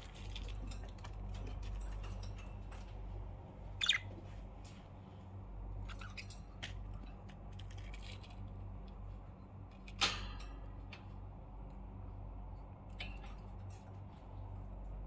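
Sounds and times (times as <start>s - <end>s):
steady low hum: 0.0s - 15.0s
budgerigars chirping: 3.8s - 4.1s.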